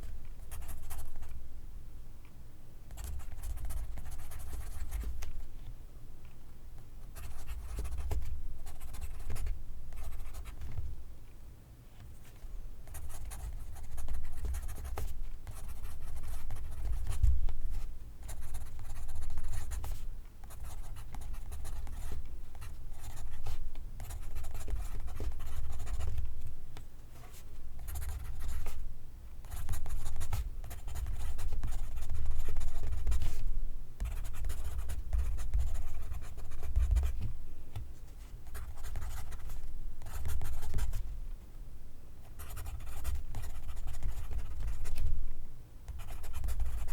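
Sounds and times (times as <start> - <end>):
pencil writing on paper: 12.9 - 17.2, 18.3 - 26.1, 27.8 - 28.7, 29.4 - 33.4, 34.0 - 37.2, 38.5 - 41.0, 42.4 - 45.0, 45.9 - 46.9.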